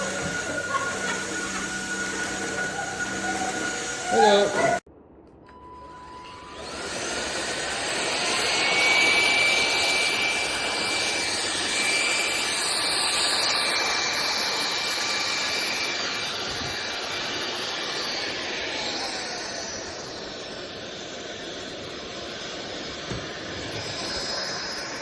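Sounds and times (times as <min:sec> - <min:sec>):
stick vacuum motor whining: 0:00.0 - 0:04.8, 0:05.8 - 0:25.0.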